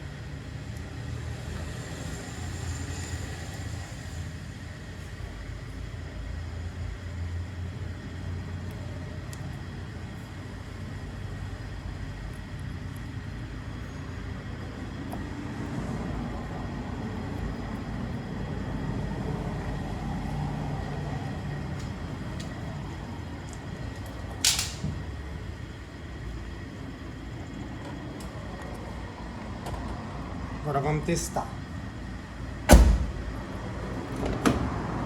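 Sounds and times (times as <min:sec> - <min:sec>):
low background rumble: 0:00.0 - 0:35.0.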